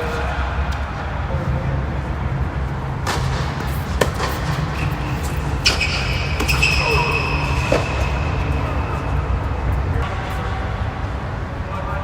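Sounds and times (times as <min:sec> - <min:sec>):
tennis ball hits: 0:03.0 - 0:09.0.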